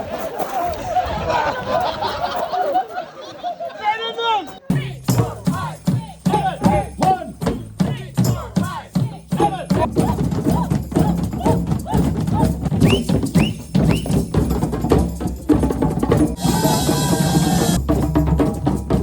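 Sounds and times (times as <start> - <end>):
percussion music: 4.7 - 19.0.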